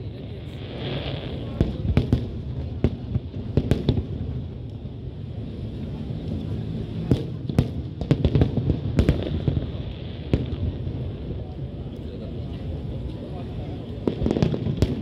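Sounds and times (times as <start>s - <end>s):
fireworks bangs: 0.0s - 4.6s, 6.8s - 11.5s, 13.9s - 15.0s.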